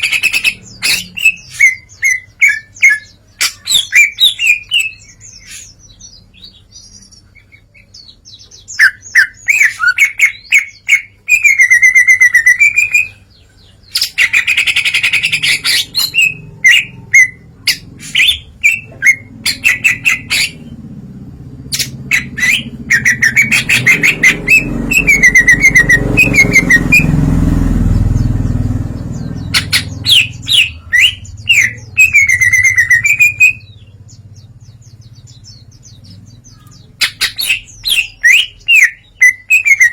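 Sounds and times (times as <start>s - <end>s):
bird singing chirps and trills: 0.0s - 39.9s.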